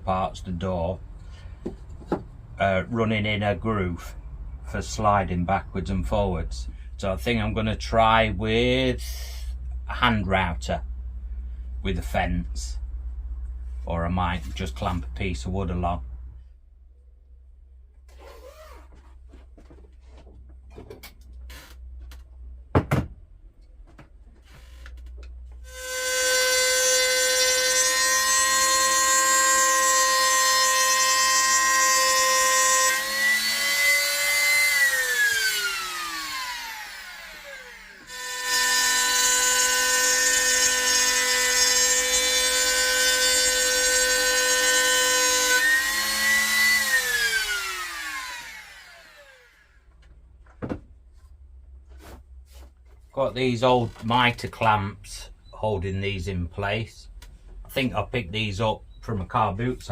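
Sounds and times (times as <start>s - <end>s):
electric router whining: 25.6s - 49.8s.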